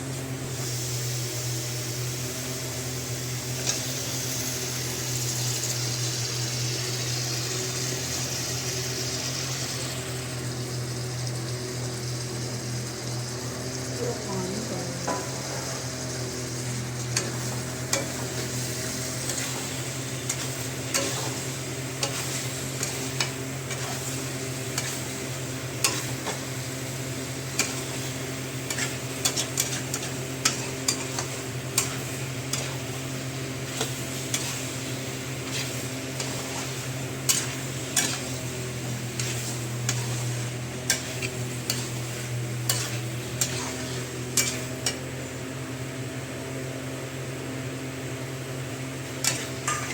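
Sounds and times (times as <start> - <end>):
curry sizzling in a pan: 0.0 - 49.9
spatula scraping and clinking pan: 17.0 - 25.2, 25.8 - 26.5, 27.5 - 32.9, 35.4 - 45.1, 49.2 - 49.9.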